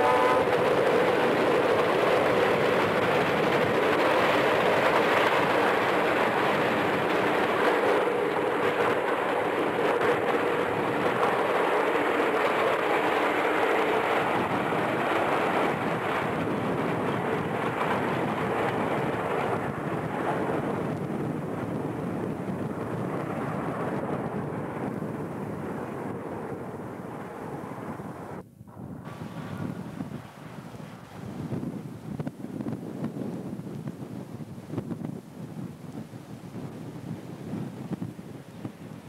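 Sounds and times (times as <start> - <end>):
diesel train passing: 0.0 - 28.4.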